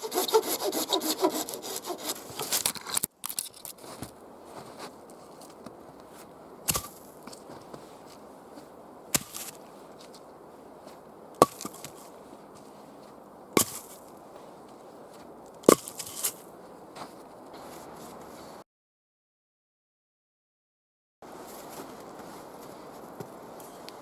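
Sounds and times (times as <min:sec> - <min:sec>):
axe chopping wood: 0:11.4 - 0:11.9, 0:13.6 - 0:13.9.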